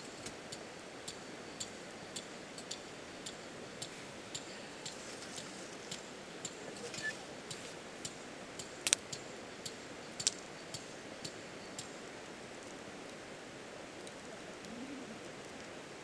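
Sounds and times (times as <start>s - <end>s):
low hiss: 0.0s - 16.0s
wood fire crackling: 8.7s - 9.1s.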